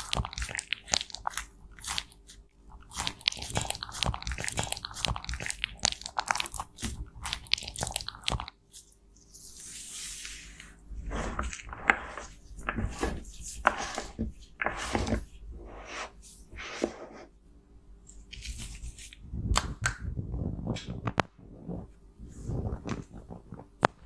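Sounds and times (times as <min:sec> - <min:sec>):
powder crunching and crackling: 0:00.0 - 0:09.0
soft hissing scrape: 0:09.2 - 0:17.3.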